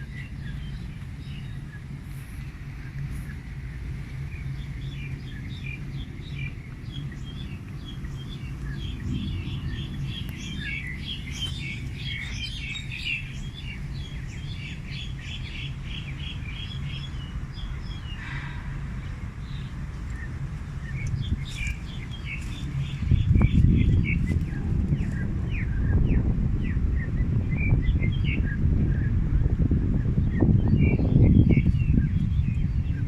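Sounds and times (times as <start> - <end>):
songbirds chirping: 0.0 - 33.0
steady low hum: 0.0 - 33.0.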